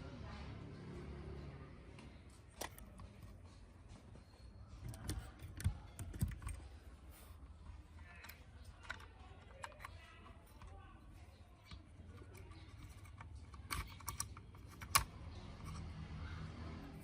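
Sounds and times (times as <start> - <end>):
small parts clicking and tapping: 4.8 - 16.1.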